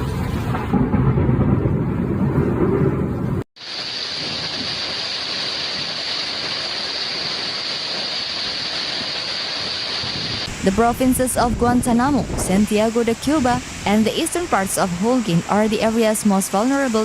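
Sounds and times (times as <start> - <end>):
heavy rain hiss: 3.6 - 17.0
wind buffeting microphone: 9.6 - 16.0.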